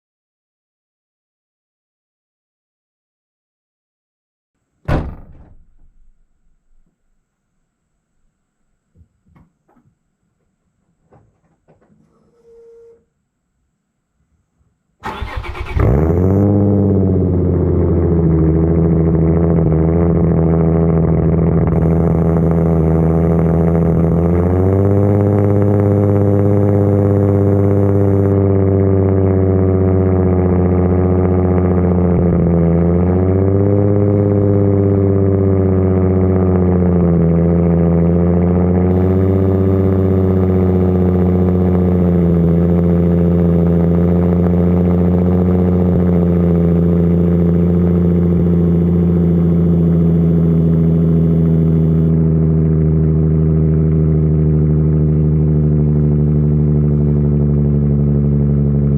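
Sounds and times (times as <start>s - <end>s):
car engine starting and idling: 15.0s - 58.9s.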